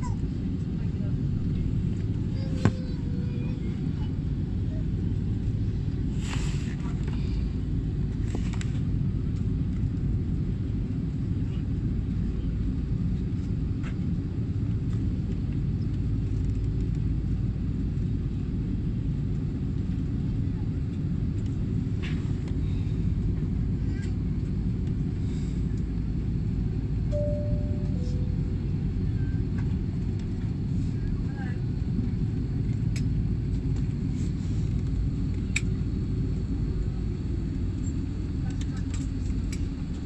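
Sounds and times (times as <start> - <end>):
aircraft cabin low rumble: 0.0 - 40.0
two-note falling electronic chime: 27.2 - 28.5.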